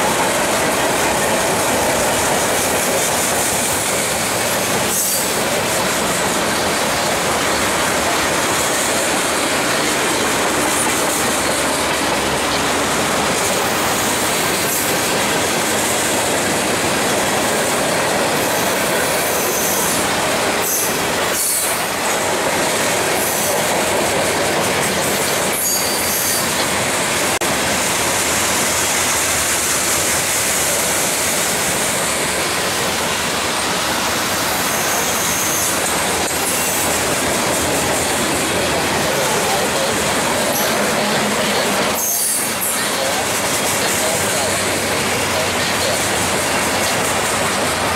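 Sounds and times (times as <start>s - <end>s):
train wheels rumbling on rails: 0.0s - 47.9s
faint high wheel squeal: 18.4s - 21.9s, 25.5s - 26.6s, 34.4s - 36.9s, 41.4s - 43.1s.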